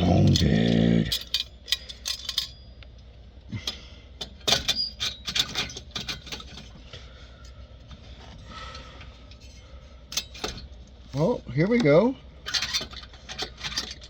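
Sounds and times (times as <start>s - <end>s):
metal tools clinking and clanking: 0.0s - 2.7s, 4.2s - 6.7s, 9.3s - 10.7s, 12.4s - 14.0s.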